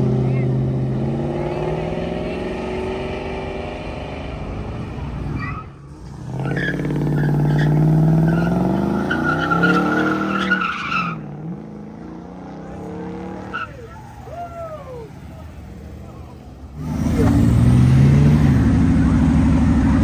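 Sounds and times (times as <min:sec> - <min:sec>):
car engine revving hard: 0:00.0 - 0:05.4, 0:06.1 - 0:14.0, 0:15.5 - 0:20.0
tires squealing: 0:00.0 - 0:20.0
car engine running: 0:12.6 - 0:20.0.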